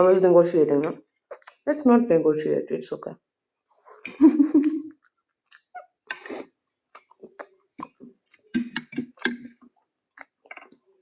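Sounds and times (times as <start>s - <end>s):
person chewing with mouth clicks: 4.9s - 10.8s.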